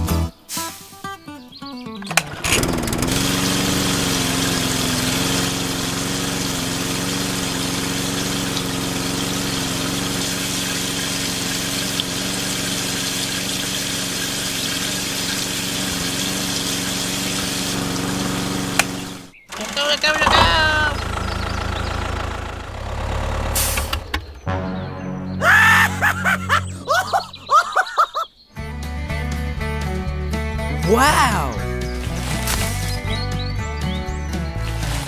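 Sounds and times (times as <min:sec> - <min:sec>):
small motor humming: 0:02.4 - 0:24.2.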